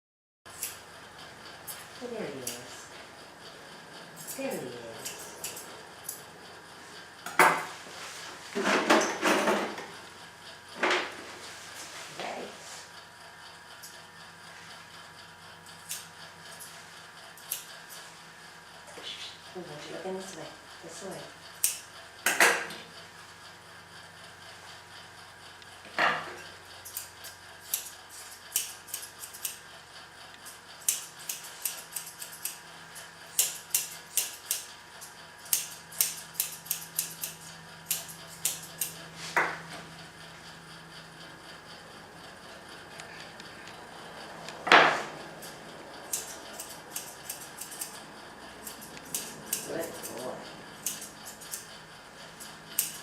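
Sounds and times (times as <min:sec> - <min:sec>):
scissors snipping: 0:04.2 - 0:06.2, 0:26.8 - 0:29.6, 0:30.8 - 0:32.6, 0:33.3 - 0:34.7, 0:35.4 - 0:39.0, 0:45.4 - 0:48.0, 0:48.6 - 0:51.7, 0:52.4 - 0:53.0.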